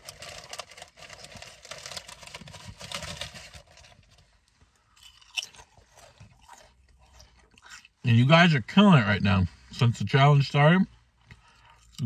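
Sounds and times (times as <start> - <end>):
chewing with wet mouth clicks: 5.0 - 8.0.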